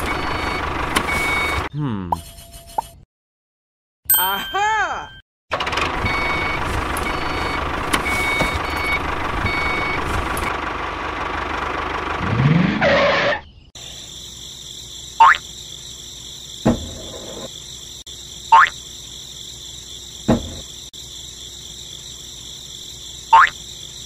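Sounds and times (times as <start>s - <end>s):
crickets and insects chirping: 13.5s - 24.0s.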